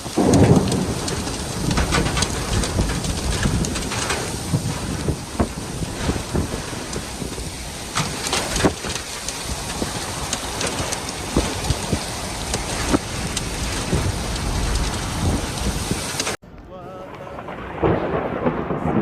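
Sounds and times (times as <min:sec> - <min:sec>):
raindrops tapping a surface: 0:00.0 - 0:16.4
rain falling: 0:00.0 - 0:19.0.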